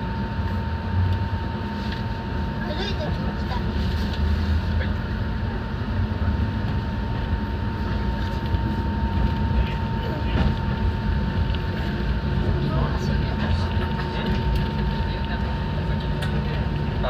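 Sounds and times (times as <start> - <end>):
electric train interior rumble: 0.0 - 17.0.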